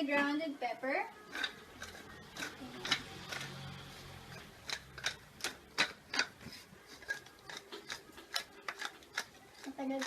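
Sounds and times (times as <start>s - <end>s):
pepper grinder clicking: 4.3s - 6.3s, 7.0s - 10.0s.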